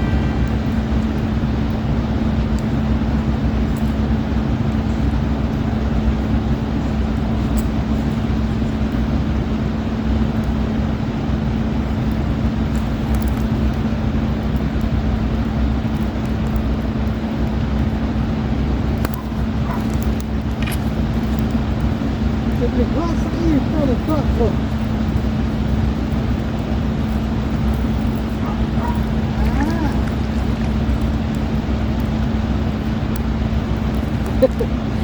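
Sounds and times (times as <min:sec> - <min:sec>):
low rumbling hum: 0:00.0 - 0:35.0
faint clicks: 0:12.0 - 0:13.8, 0:19.0 - 0:21.9.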